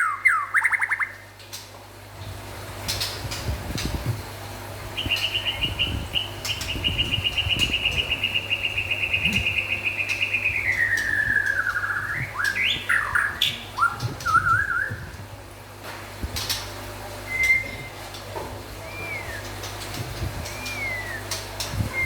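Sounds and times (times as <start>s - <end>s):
bird whistled phrases: 0.0s - 1.2s, 5.0s - 15.1s, 17.3s - 18.0s, 18.8s - 19.6s, 20.4s - 22.0s
bird trilling: 0.0s - 1.3s, 5.0s - 15.0s, 18.8s - 22.0s.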